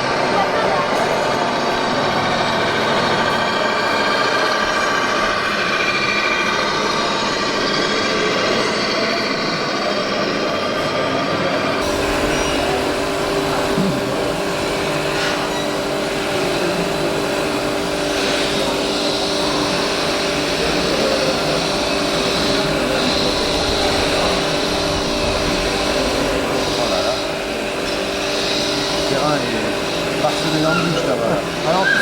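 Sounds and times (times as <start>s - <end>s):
toy construction machines whining: 0.0s - 32.0s.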